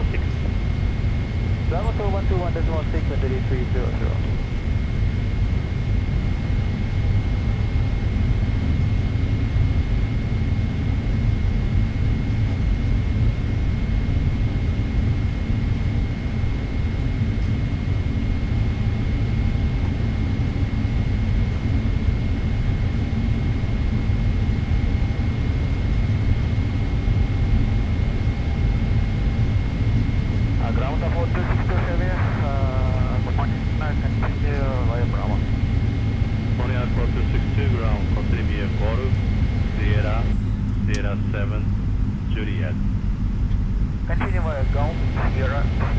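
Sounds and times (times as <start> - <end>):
faint high whine: 0.0 - 8.3, 24.7 - 43.2, 43.8 - 45.9
airplane cabin rumble: 0.0 - 12.8, 16.1 - 45.9.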